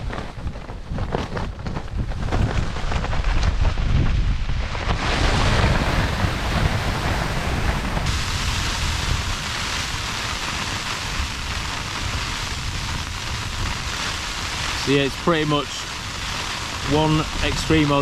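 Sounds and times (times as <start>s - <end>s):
storm wind battering a tent: 0.0s - 18.0s
wind buffeting microphone: 0.0s - 18.0s
bright hiss: 5.0s - 18.0s.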